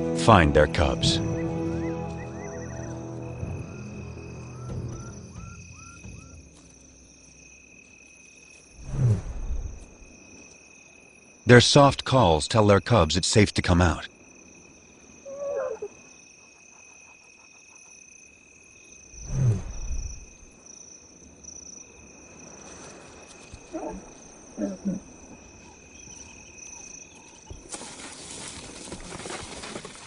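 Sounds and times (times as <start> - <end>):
crickets chirring: 0.7 - 30.0
lioness calling: 15.2 - 16.0, 23.6 - 26.9
rustling hiss: 19.0 - 30.0.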